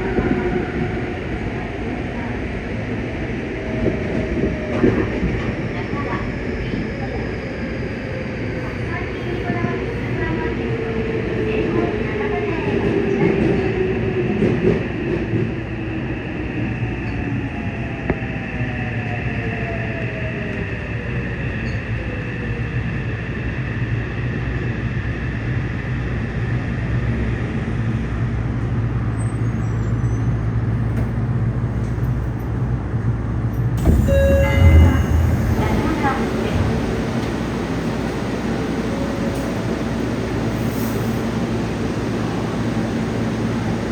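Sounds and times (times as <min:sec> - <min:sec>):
train wheel and running noise: 0:00.0 - 0:43.9
train motor whine: 0:33.8 - 0:38.2.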